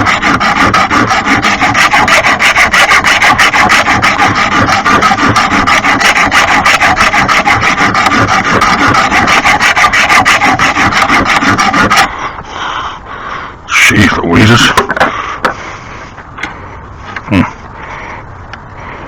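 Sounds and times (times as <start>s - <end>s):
file rasping on mower blade: 0.0s - 12.2s.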